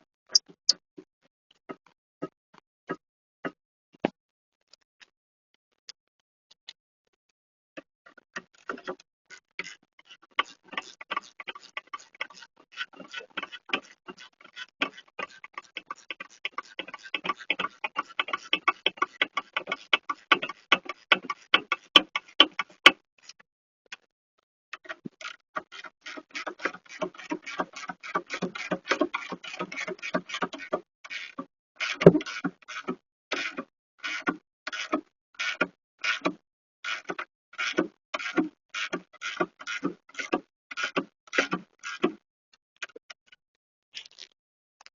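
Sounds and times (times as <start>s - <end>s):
rapid ratchet clicking: 10.4s - 23.0s, 25.2s - 42.2s.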